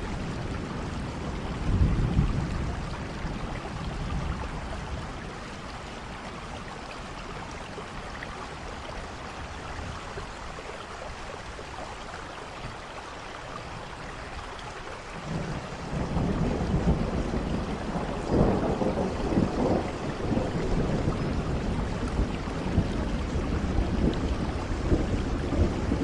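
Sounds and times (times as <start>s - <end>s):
thunder rumble: 0.0s - 5.6s, 15.2s - 26.0s
rain falling: 0.0s - 26.0s.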